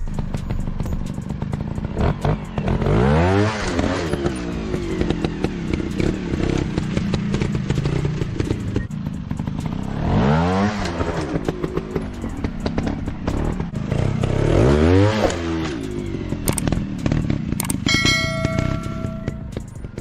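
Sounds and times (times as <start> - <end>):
motorcycle engine revving: 0.0 - 20.0
steady ringing tone: 17.8 - 20.0.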